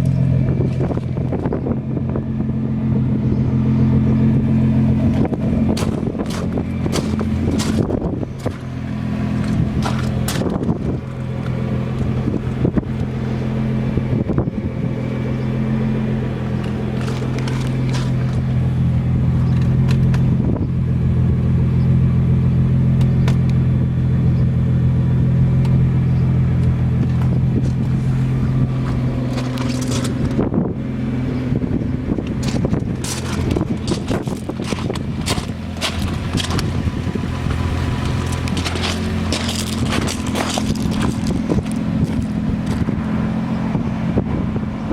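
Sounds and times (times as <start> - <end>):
car engine idling: 0.0 - 44.9
clicks and rustles: 5.2 - 8.7, 16.6 - 18.6, 28.9 - 30.4, 32.2 - 36.8, 37.9 - 42.9.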